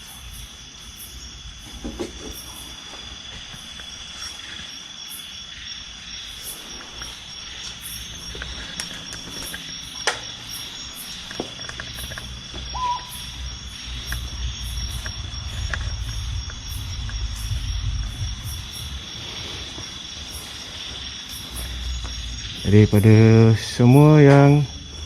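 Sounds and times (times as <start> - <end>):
crickets and insects chirping: 0.0 - 25.0
low rumble: 10.6 - 23.8.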